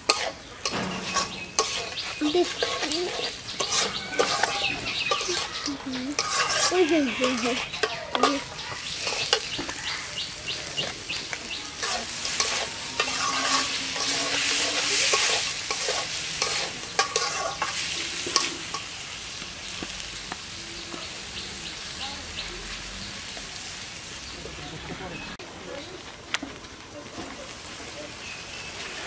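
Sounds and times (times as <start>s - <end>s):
metal spatula scraping a pan: 0.0s - 19.2s
onions sizzling in a pan: 0.0s - 29.0s.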